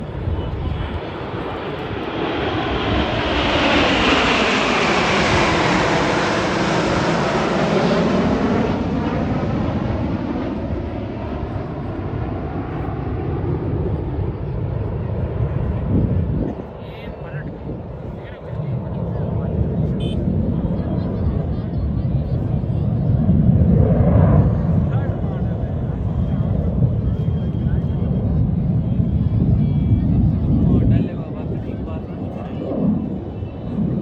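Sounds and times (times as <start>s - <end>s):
jet aircraft flying past: 0.0s - 34.0s.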